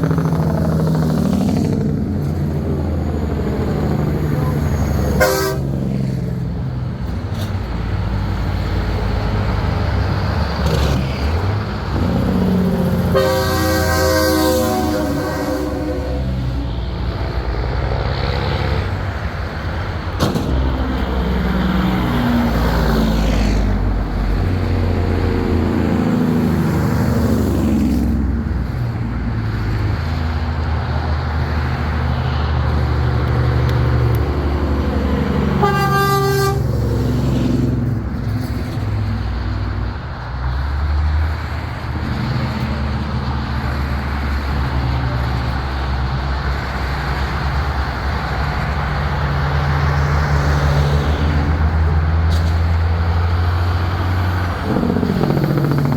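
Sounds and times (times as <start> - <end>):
trucks driving past: 0.0 - 55.9
truck horn blast: 4.4 - 5.9, 12.0 - 16.6, 35.4 - 36.8.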